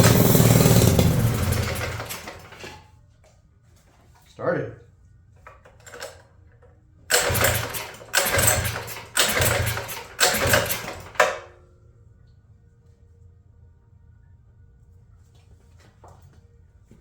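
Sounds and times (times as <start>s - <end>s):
small engine running roughly: 0.0s - 2.8s, 7.1s - 11.5s.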